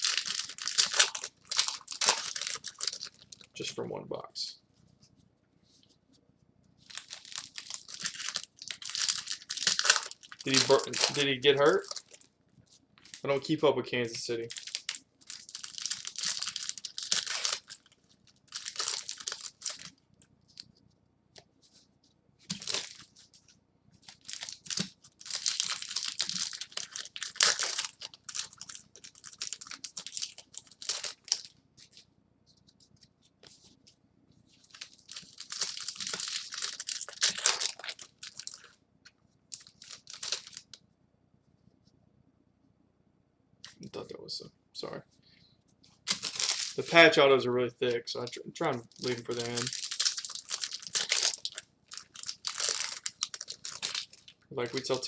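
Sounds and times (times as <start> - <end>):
wrappers tearing and crinkling: 0.0 - 3.5, 6.8 - 12.3, 14.5 - 20.0, 22.5 - 23.1, 24.0 - 32.0, 34.6 - 38.7, 39.5 - 40.8, 46.0 - 47.0, 48.7 - 55.0.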